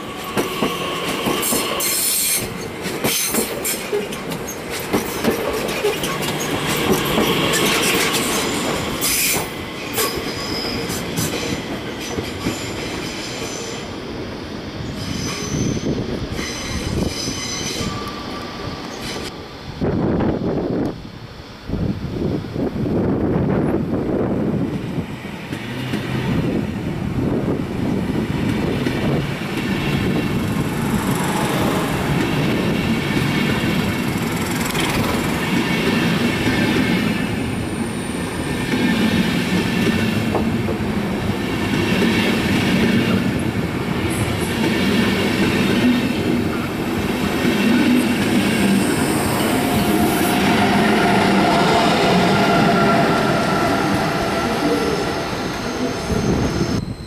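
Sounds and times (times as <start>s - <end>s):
electric locomotive hum: 0.0s - 57.0s
train wheels clattering over rail joints: 0.2s - 13.6s
high wheel squeals: 5.9s - 11.6s, 14.8s - 19.3s, 48.6s - 57.0s.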